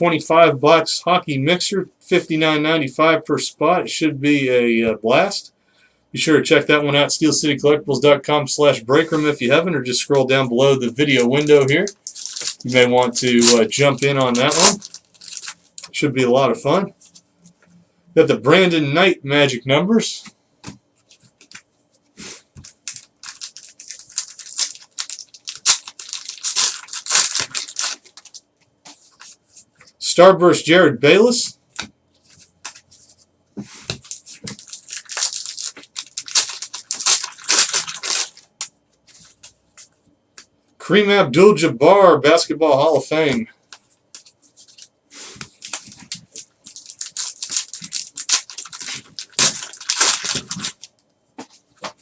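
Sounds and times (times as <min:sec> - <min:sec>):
wrappers ripping and crinkling: 0:11.1 - 0:16.0, 0:22.6 - 0:28.5, 0:34.0 - 0:38.7, 0:44.6 - 0:51.0.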